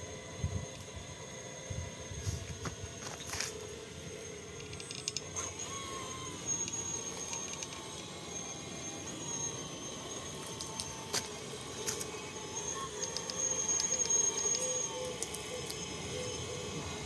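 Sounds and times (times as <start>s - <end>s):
electric motor and gearbox whine: 0.0s - 17.0s
sharp clicks: 4.6s - 5.4s, 6.6s - 8.0s, 13.0s - 15.8s.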